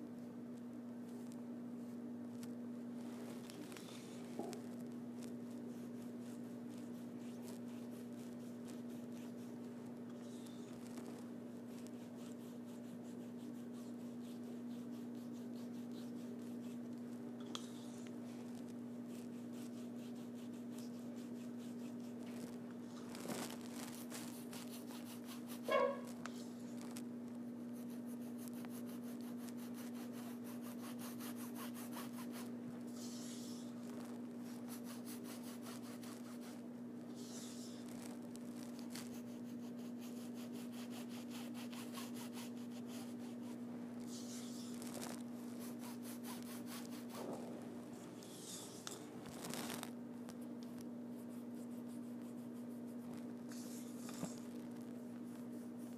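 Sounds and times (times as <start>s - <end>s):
steady low hum: 0.0s - 55.9s
paintbrush scrubbing: 5.5s - 16.8s, 19.0s - 27.0s, 27.6s - 47.4s
short squeak: 25.7s - 26.2s.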